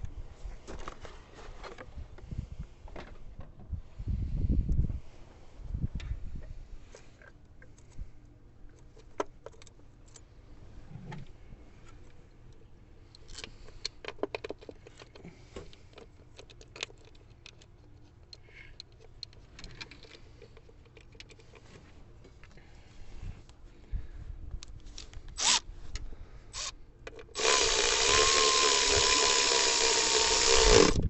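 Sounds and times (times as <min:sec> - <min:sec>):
tools clicking and rattling: 0:13.2 - 0:21.7.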